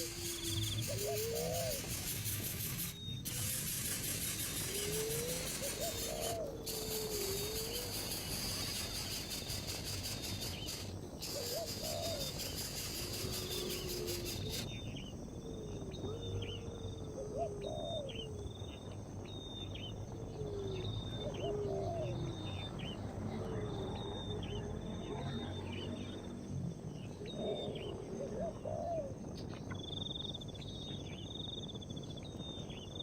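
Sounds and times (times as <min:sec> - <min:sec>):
low sliding bird hoots: 0:00.0 - 0:14.7
insect-like high hiss: 0:00.0 - 0:21.2.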